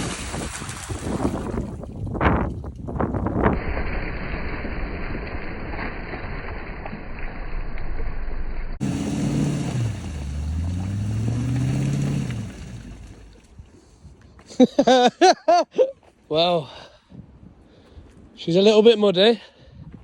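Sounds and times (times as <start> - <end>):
off-road vehicle engine revving: 8.8 - 13.4.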